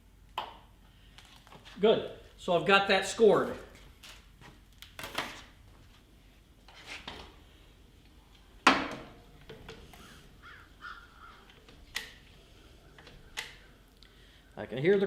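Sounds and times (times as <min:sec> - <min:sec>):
crows cawing: 0:10.0 - 0:11.7.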